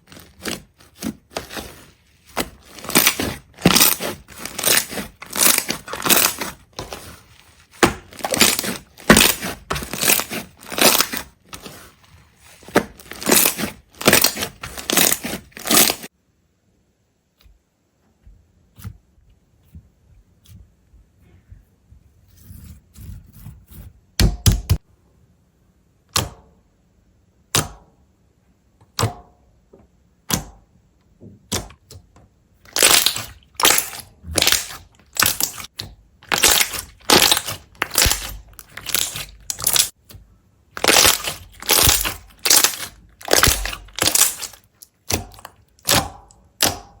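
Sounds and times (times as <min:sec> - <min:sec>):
brittle material cracking and crunching: 0:00.0 - 0:11.8, 0:12.5 - 0:16.1, 0:32.7 - 0:40.0, 0:40.8 - 0:47.0.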